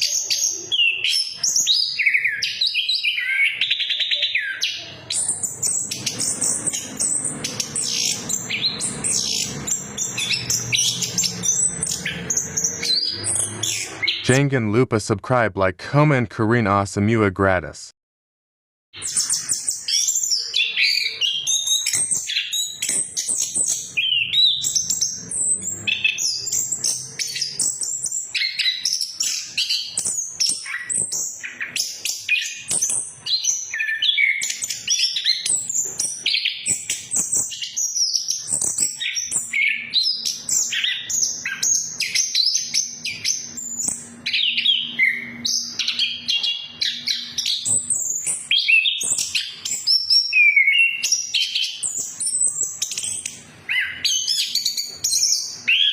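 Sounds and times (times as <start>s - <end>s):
thrush singing: 4.8s - 17.1s.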